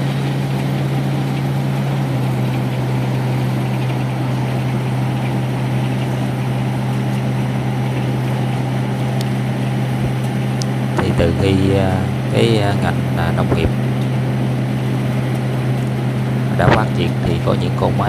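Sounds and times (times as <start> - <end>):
harvester engine running: 0.0 - 18.0.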